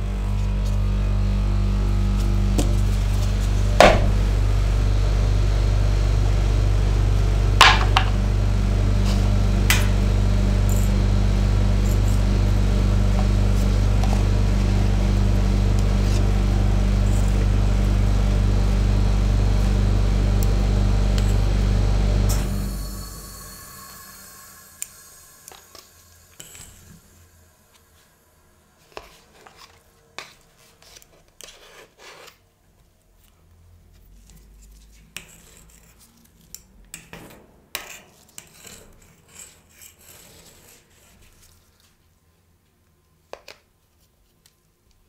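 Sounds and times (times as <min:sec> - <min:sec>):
refrigeration unit humming: 0:00.0 - 0:29.1.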